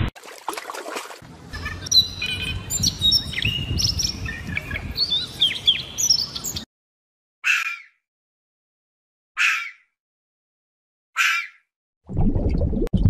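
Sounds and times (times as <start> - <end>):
songbirds chirping and singing: 1.5 - 6.7, 9.4 - 9.9.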